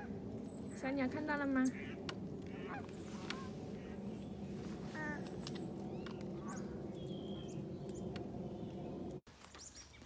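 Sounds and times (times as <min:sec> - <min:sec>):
small birds chirping: 0:00.0 - 0:10.0
ducks quacking: 0:01.7 - 0:04.0.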